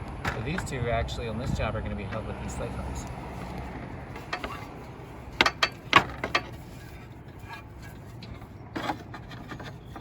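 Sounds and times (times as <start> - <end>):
roofing slate clacking: 4.1 - 10.0
slate scraping: 4.1 - 10.0.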